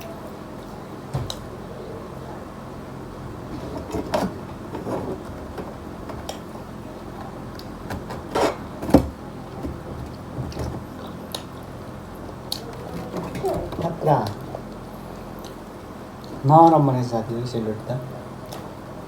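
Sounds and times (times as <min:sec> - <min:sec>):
steady low hum: 0:00.0 - 0:19.0
dishes clicking and knocking: 0:12.5 - 0:14.6.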